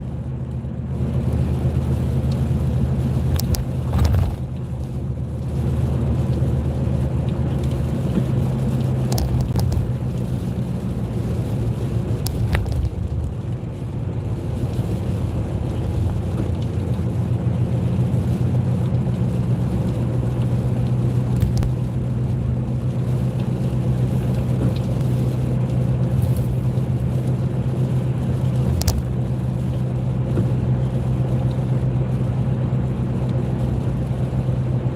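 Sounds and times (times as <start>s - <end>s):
car engine and road hum: 0.0s - 34.9s
sharp clicks: 9.1s - 9.9s.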